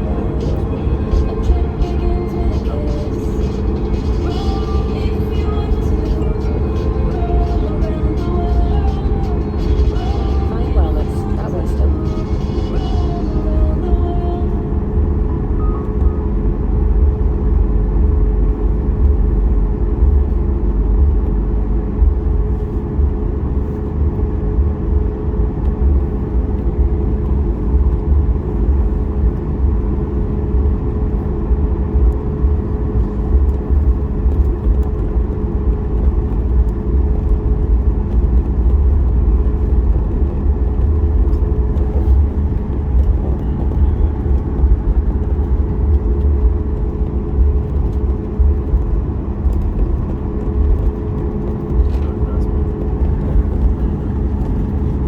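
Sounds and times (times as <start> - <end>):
aircraft cabin engine rumble: 0.0 - 55.0.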